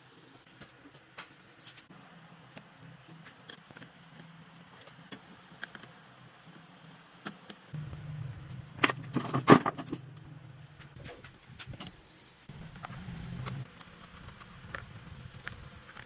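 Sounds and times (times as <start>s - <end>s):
low hum: 7.8s - 15.3s
metal parts clinking: 8.7s - 10.2s.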